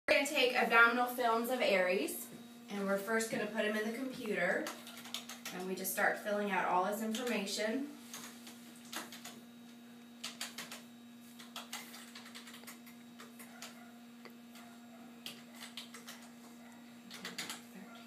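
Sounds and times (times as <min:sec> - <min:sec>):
low electrical hum: 0:00.1 - 0:18.0
computer keyboard typing: 0:04.6 - 0:05.6, 0:08.9 - 0:09.4, 0:10.2 - 0:10.8, 0:11.4 - 0:13.8, 0:15.2 - 0:16.3, 0:17.1 - 0:17.7.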